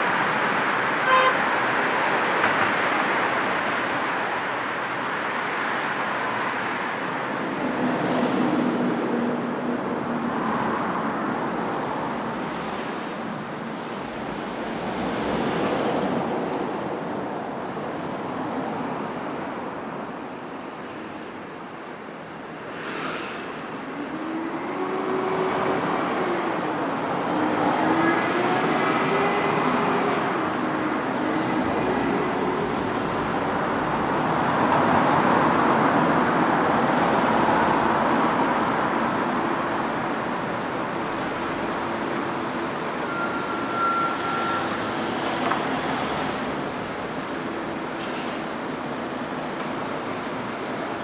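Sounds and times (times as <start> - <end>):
cars passing: 21.0 - 50.8.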